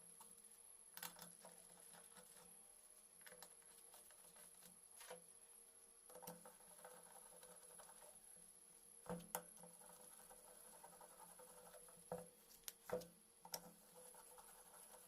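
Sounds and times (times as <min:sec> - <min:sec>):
faint sharp clicks and taps: 0:03.2 - 0:05.3, 0:09.0 - 0:09.8, 0:10.7 - 0:14.5.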